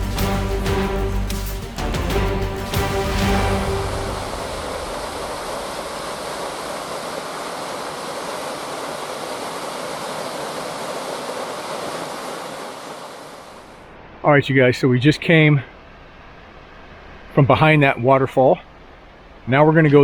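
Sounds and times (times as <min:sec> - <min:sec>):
waterfall rushing: 0:00.0 - 0:14.2.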